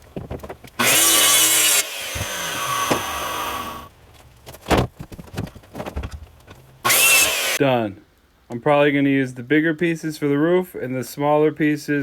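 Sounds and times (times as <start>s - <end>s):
saw cutting through wood: 0.8s - 3.9s, 6.8s - 7.6s.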